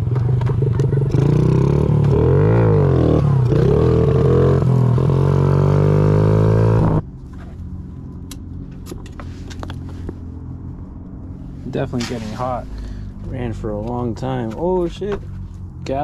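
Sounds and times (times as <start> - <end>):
small motorcycle engine revving and idling: 0.0 - 7.0.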